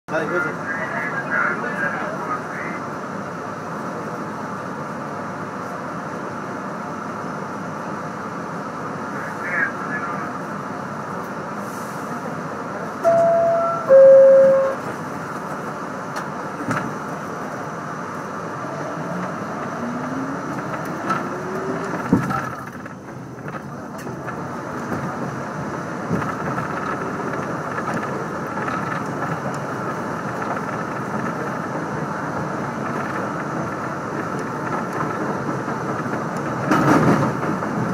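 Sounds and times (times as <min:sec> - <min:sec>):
train rumbling past: 0:00.1 - 0:37.9.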